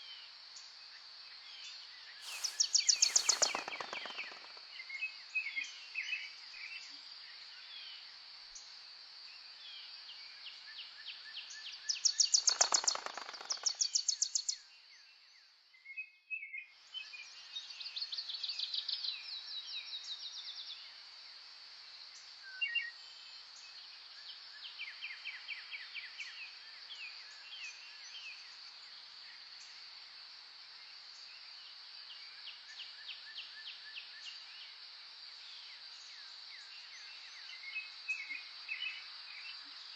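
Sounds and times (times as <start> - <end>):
high-pitched insect drone: 2.2 - 4.6
songbirds trilling and chirping: 2.2 - 4.7, 12.0 - 14.2.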